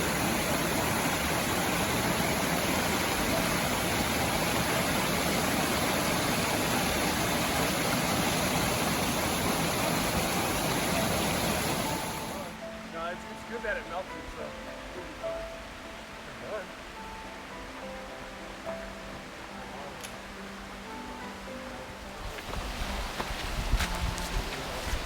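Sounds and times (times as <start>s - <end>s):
rushing stream water: 0.0s - 12.7s, 21.8s - 25.0s.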